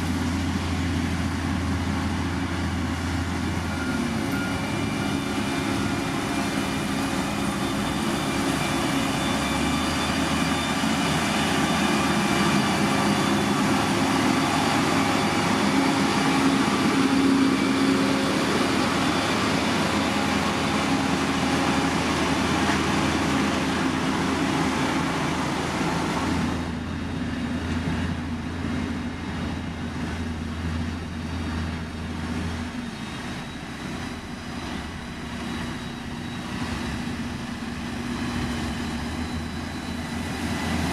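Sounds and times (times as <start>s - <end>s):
heavy diesel engines running: 0.0s - 40.9s.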